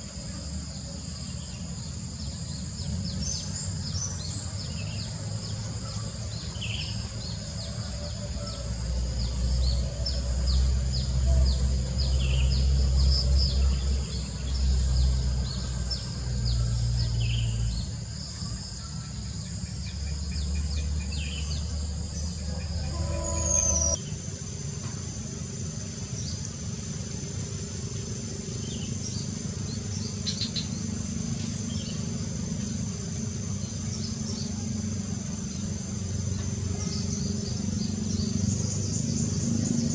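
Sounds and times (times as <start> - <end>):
high insect drone: 0.0 - 39.9
bird chirps: 1.3 - 24.1.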